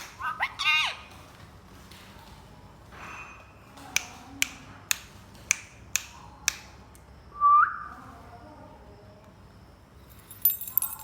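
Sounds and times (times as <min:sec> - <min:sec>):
parrot squawking: 0:00.0 - 0:01.1
sharp snapping clicks: 0:03.9 - 0:07.1.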